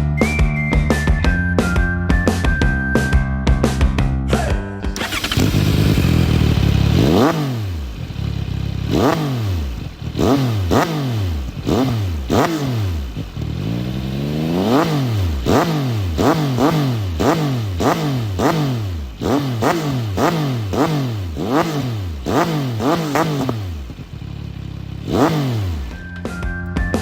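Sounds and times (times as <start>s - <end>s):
motorcycle engine revving: 4.9s - 26.2s.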